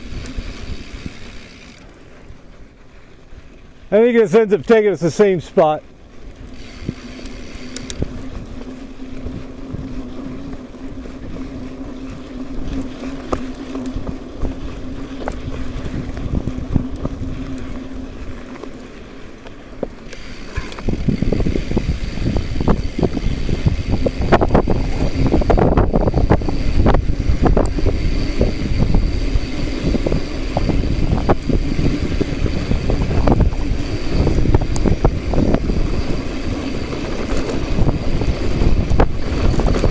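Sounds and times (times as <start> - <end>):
wind buffeting microphone: 0.0 - 1.8, 6.0 - 18.7, 19.8 - 39.9.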